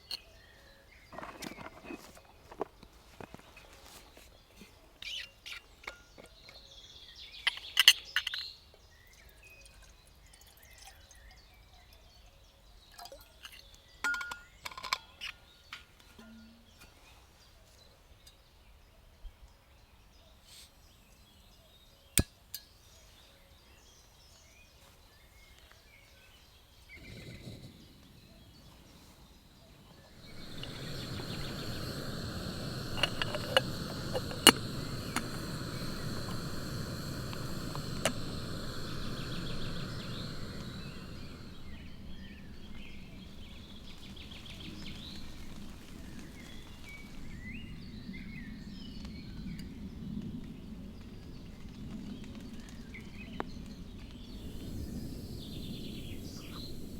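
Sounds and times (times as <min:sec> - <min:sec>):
metallic clinks of a pot: 0:14.0 - 0:15.1
gas burner hissing: 0:26.9 - 0:48.2, 0:54.2 - 0:56.9
stove igniter clicks: 0:30.2 - 0:42.0.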